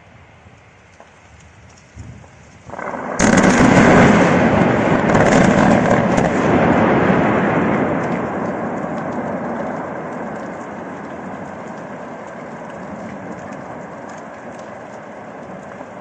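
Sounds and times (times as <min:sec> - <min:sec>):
blast detonation: 0:02.7 - 0:10.2
blast rumble: 0:02.7 - 0:14.6.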